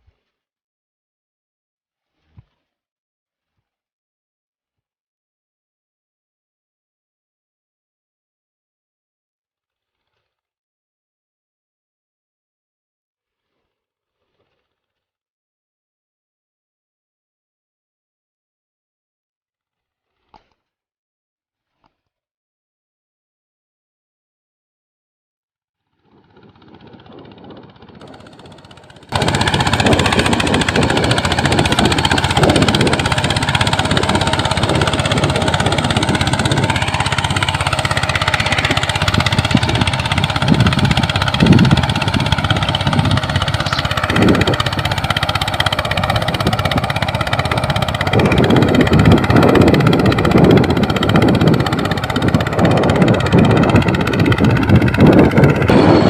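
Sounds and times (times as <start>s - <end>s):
tractor engine running roughly: 26.0s - 56.0s.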